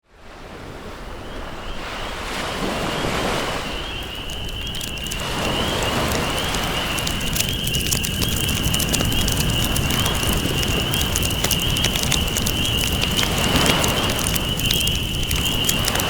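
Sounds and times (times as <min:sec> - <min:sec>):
campfire crackling: 0:03.6 - 0:16.0.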